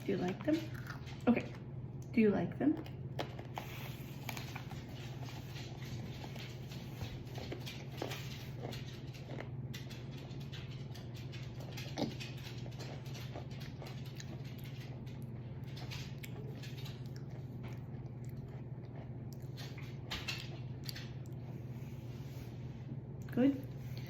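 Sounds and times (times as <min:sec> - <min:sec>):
person chewing crunchy snacks: 0:16.2 - 0:19.5.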